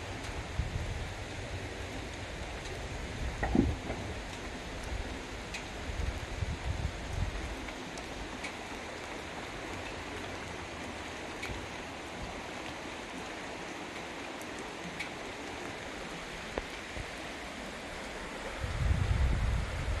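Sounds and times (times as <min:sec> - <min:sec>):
steady rain hiss: 0:00.0 - 0:20.0
drip ticks: 0:03.4 - 0:05.8, 0:07.1 - 0:11.9, 0:12.5 - 0:16.8.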